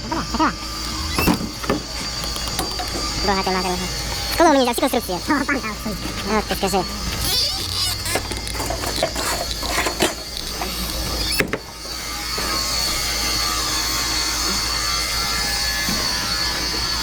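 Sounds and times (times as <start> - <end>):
machine with high whine: 0.0 - 17.0
mechanical clattering and knocks: 0.8 - 4.4, 7.0 - 12.7.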